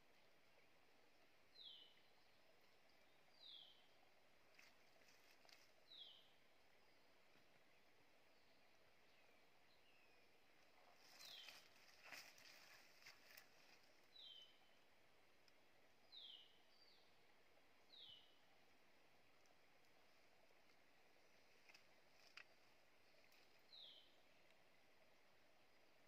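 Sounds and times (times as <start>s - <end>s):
faint whistled bird calls: 11.0s - 13.4s
leaf litter rustling: 11.0s - 13.9s.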